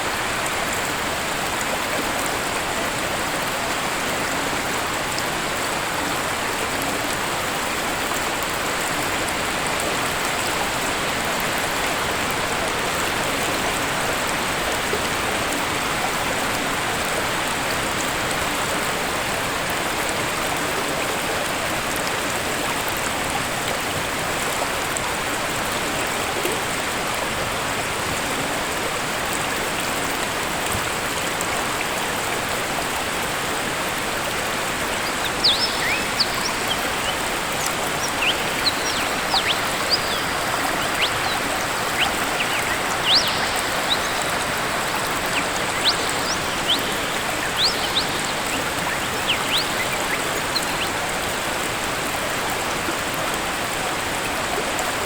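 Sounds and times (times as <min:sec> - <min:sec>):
waterfall rushing: 0:30.8 - 0:55.0.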